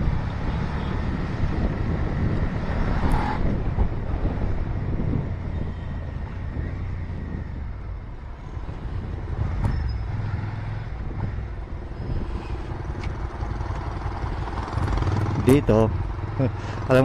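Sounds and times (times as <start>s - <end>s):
road and wind noise: 0.0s - 17.0s
motorcycle engine at low revs: 12.5s - 17.0s.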